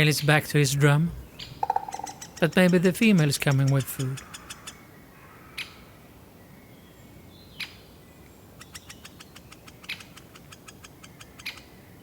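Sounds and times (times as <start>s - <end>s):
woodpecker kik calls: 1.2s - 4.8s
woodpecker high ticking notes: 1.4s - 4.0s.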